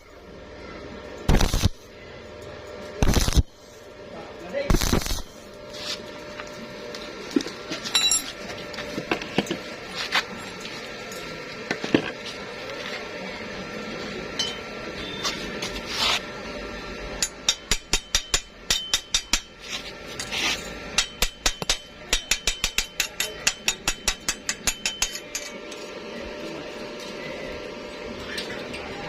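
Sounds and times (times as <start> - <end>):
hammer tapping on metal: 17.2 - 19.6, 21.0 - 25.6.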